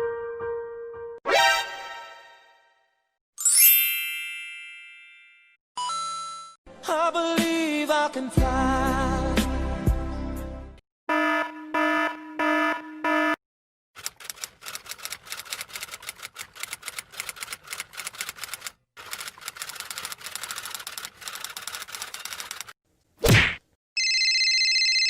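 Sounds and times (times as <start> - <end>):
typewriter keys clacking: 14.0 - 22.8.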